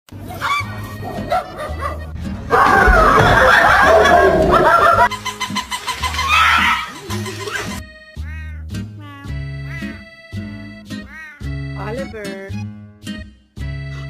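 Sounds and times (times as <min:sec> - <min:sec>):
background music: 0:00.1 - 0:14.0
laughter: 0:03.3 - 0:05.1.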